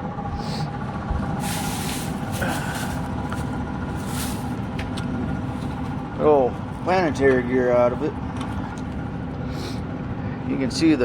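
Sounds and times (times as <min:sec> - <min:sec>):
mechanical drone with hum: 0:00.0 - 0:11.0
short hissing rushes: 0:01.4 - 0:04.6.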